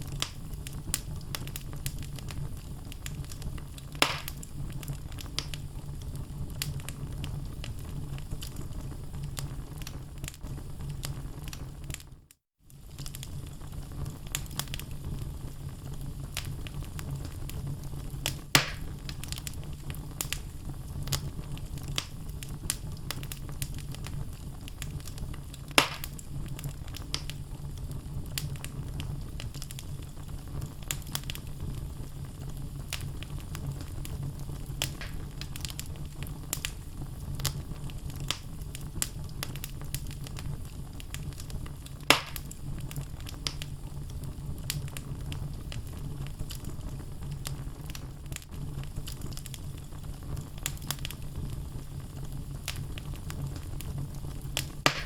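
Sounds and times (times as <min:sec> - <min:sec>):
logs crackling in a fire: 0:00.0 - 0:55.0
loud fire pops: 0:00.0 - 0:55.0
low fire rumble: 0:00.0 - 0:55.0.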